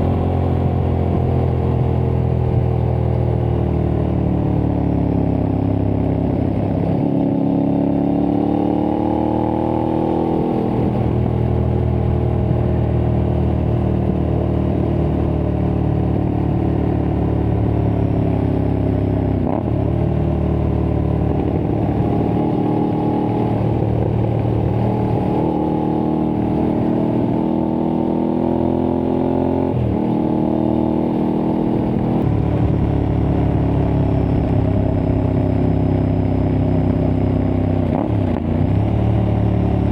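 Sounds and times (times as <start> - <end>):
motorcycle engine under load: 31.0 - 39.8.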